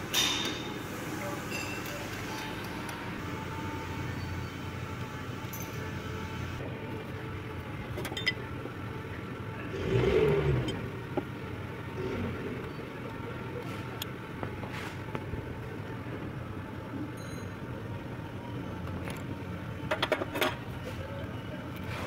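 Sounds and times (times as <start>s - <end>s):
vehicle engine revving: 9.5s - 12.8s.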